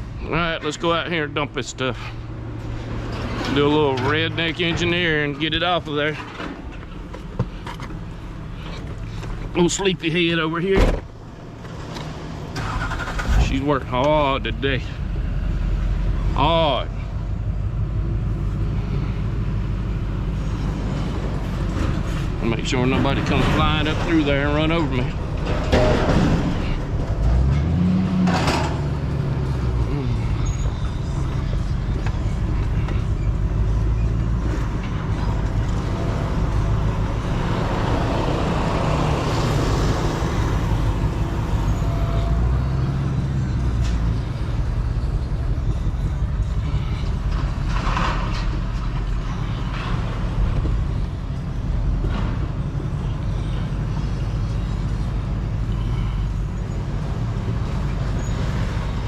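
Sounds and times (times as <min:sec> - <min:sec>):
truck engine running: 0:00.0 - 0:59.0
knocks or clunks: 0:10.7 - 0:14.4.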